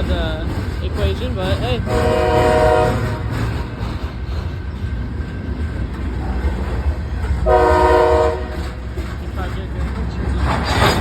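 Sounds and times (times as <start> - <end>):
freight train rumbling on rails: 0.0 - 11.0
locomotive air horn: 1.9 - 3.3, 7.5 - 8.6.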